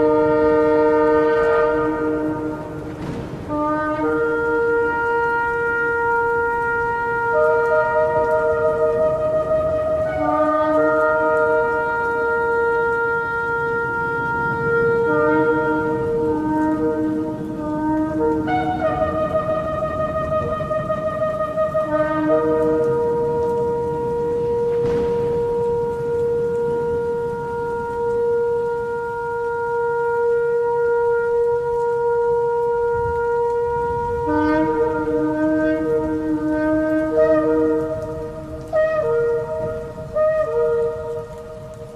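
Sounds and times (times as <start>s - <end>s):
lower-pitched horn: 0.0s - 41.9s
shofar blowing a long note: 0.0s - 41.9s.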